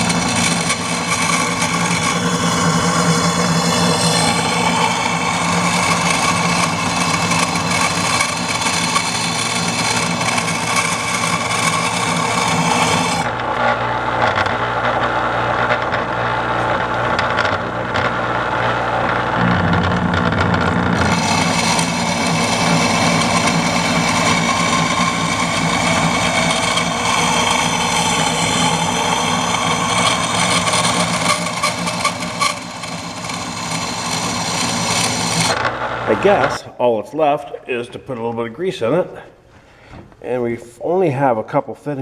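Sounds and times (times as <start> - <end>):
grinding metal blade: 0.0 - 13.3, 20.8 - 35.7
electric grinder motor hum: 0.0 - 17.3, 18.0 - 36.0.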